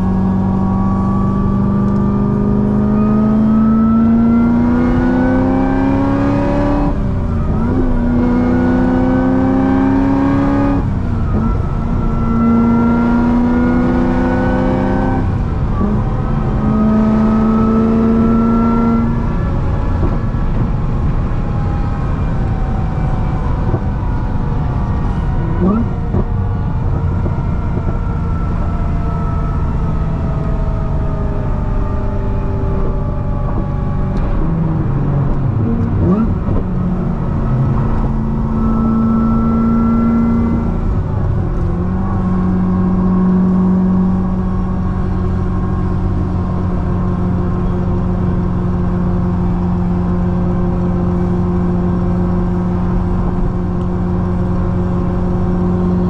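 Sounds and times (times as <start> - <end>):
road noise: 0.0 - 56.0
supercharged car engine revving: 0.0 - 56.0.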